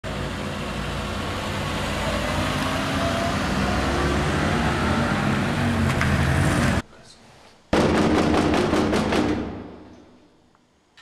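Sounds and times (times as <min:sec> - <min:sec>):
car engine humming: 0:00.0 - 0:06.8.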